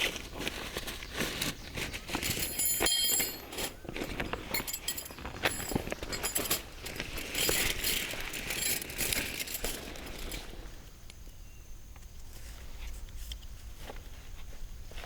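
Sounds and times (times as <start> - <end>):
rustling: 0.0 - 10.8
small clicks clinks and rattles: 2.3 - 10.4.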